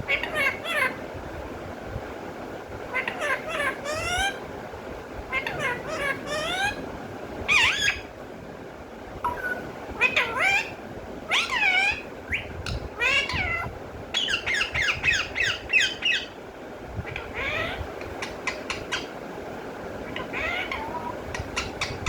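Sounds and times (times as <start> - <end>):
parrot squawking and calling: 0.1 - 1.0, 2.9 - 4.4, 5.3 - 6.8, 7.5 - 8.1, 9.3 - 16.4, 17.0 - 19.2, 20.0 - 22.0.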